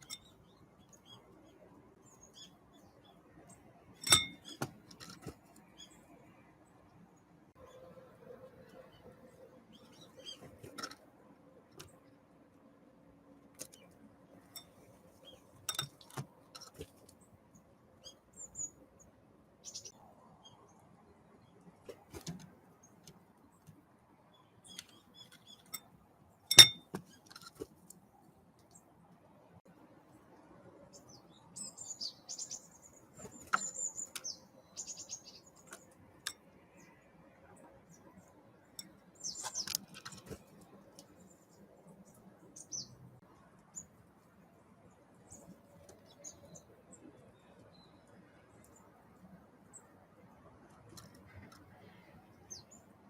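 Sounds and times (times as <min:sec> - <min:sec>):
small birds chirping: 0:00.0 - 0:11.0, 0:13.5 - 0:25.9, 0:30.8 - 0:44.2, 0:44.9 - 0:50.0, 0:51.0 - 0:53.0
bird chips: 0:38.8 - 0:43.0
birds pecking and landing: 0:38.9 - 0:41.2.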